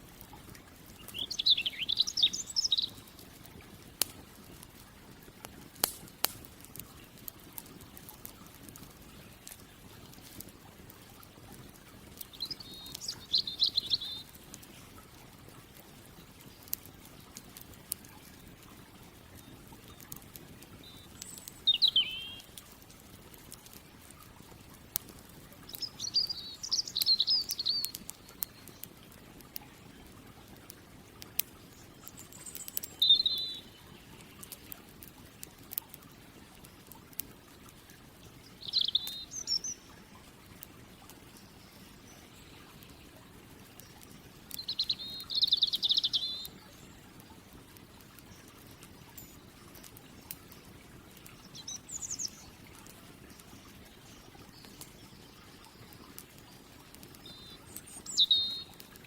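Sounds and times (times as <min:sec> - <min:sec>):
campfire crackling: 0:00.0 - 0:59.0
songbird chirping: 0:00.9 - 0:03.2, 0:12.2 - 0:14.6, 0:19.3 - 0:22.8, 0:25.7 - 0:29.0, 0:31.8 - 0:34.7, 0:38.4 - 0:40.0, 0:44.5 - 0:47.0, 0:48.2 - 0:52.7, 0:53.3 - 0:59.0.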